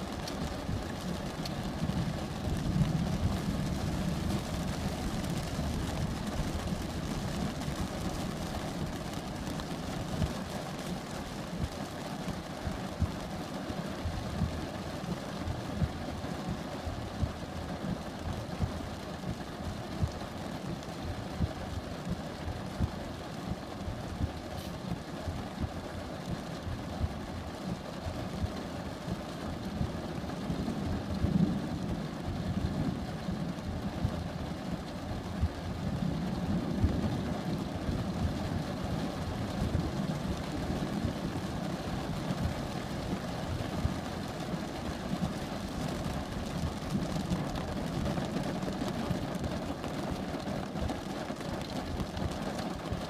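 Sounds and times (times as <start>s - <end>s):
faint rain hiss: 0.0s - 53.0s
thunder rumble: 0.1s - 10.4s.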